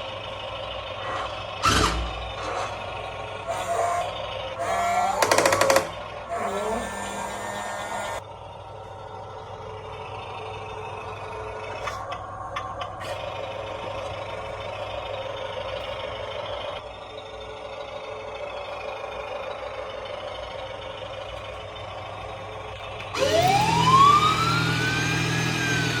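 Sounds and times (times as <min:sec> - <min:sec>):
electronic toy siren: 0:03.4 - 0:08.2, 0:23.2 - 0:26.0
small electric motor whirring: 0:03.4 - 0:08.2, 0:23.1 - 0:26.0
clicks: 0:04.9 - 0:06.1.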